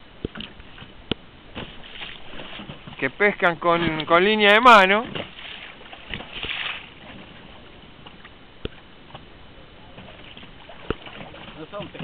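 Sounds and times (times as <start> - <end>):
wind: 0.0 - 12.0
knocks against boat: 0.2 - 3.0, 4.9 - 7.3, 9.9 - 12.0
water washing: 1.5 - 12.0.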